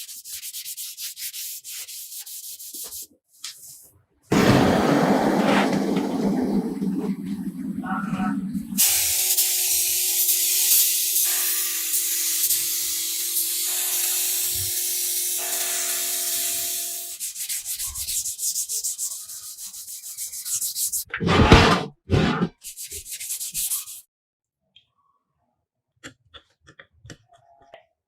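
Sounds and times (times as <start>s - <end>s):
rubbing sanding strokes: 0.0s - 3.1s, 14.4s - 21.1s, 22.6s - 24.0s
rushing bursts: 4.3s - 8.8s.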